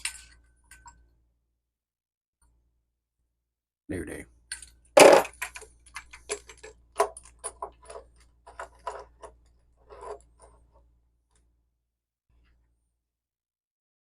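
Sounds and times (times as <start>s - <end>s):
metallic clicks of plumbing parts: 0.0s - 1.1s, 4.4s - 10.7s.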